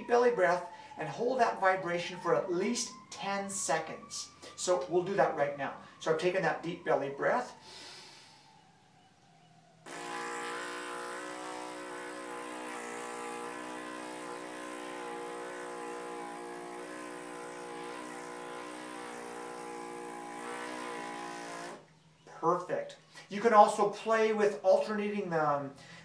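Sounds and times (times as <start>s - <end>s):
didgeridoo drone: 9.9s - 21.8s.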